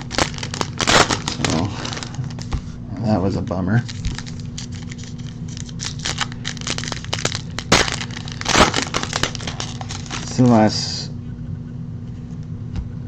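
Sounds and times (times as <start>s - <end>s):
plastic wrappers crinkling and tearing: 0.0s - 2.5s, 3.8s - 10.5s.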